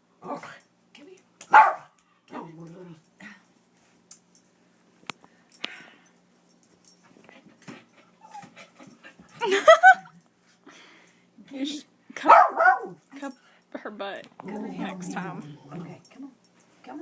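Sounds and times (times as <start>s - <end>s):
dog barking: 1.5s - 2.0s, 12.2s - 13.0s
dog whining and whimpering: 8.0s - 8.8s.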